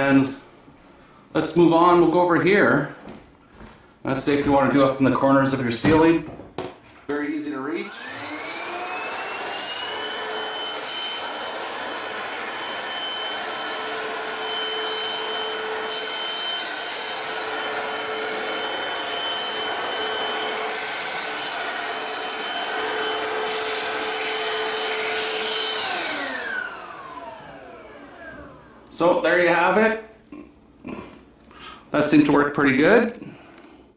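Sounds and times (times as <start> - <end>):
cordless vacuum motor whine: 7.9 - 28.9.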